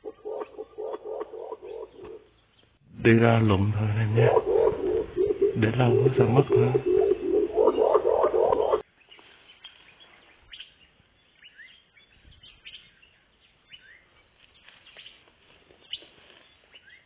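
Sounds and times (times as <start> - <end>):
faint birds chirping: 0.0 - 17.0
man's voice: 2.9 - 8.7.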